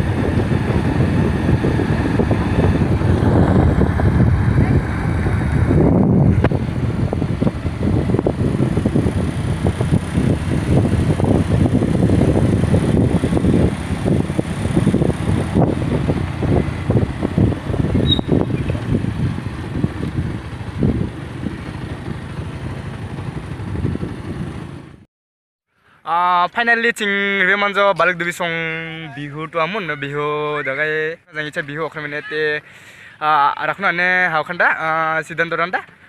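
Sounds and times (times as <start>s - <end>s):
road vehicle low rumble: 0.0s - 25.1s.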